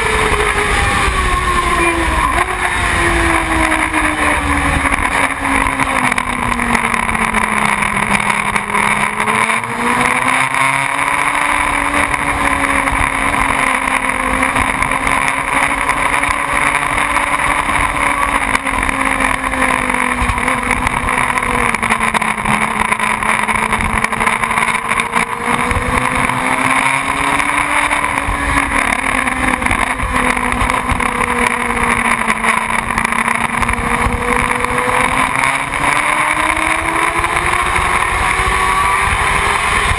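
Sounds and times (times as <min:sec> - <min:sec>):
constant rushing noise: 0:00.0 - 0:39.9
motorcycle engine running: 0:00.0 - 0:39.9.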